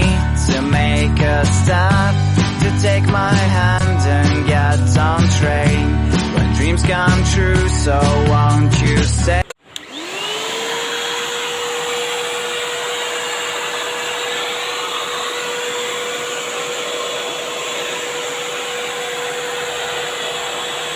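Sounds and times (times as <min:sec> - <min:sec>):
vacuum cleaner running: 0:09.4 - 0:20.9.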